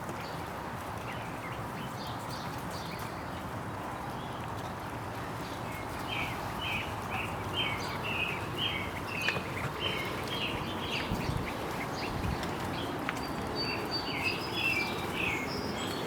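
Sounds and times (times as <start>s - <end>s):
bird chirping: 12.8s - 16.0s.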